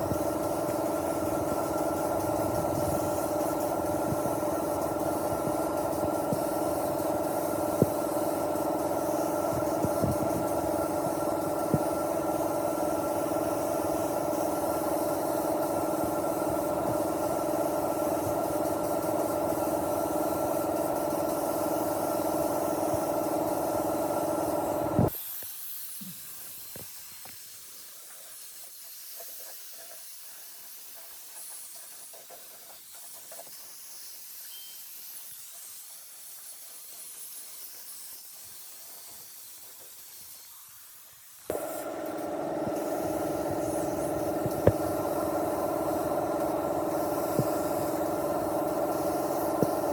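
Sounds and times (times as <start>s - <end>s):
faint hiss: 0.0s - 49.9s
motorcycle engine idling: 41.5s - 49.9s.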